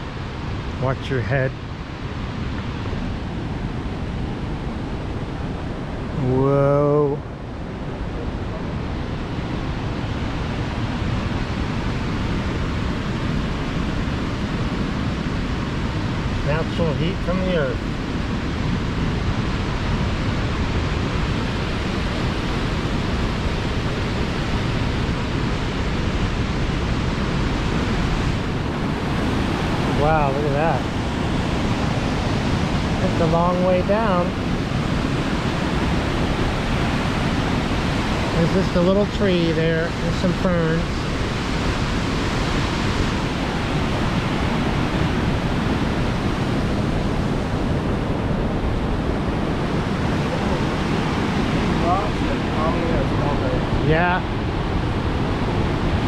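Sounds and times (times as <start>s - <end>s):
waterfall rushing: 13.0s - 56.0s.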